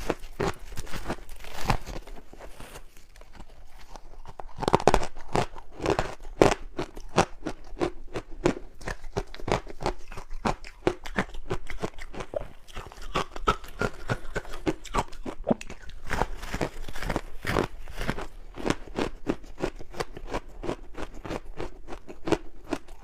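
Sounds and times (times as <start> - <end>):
ice being chewed: 0.0 - 23.0.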